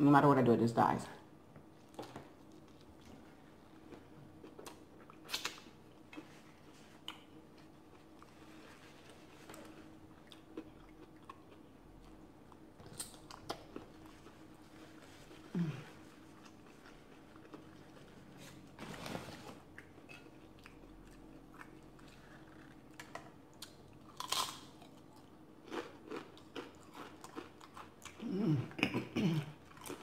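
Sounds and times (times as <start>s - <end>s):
person chewing: 1.9s - 18.3s, 19.7s - 30.0s
person humming: 15.5s - 15.9s, 28.2s - 29.6s
biting crunchy tortilla chip: 22.8s - 29.0s.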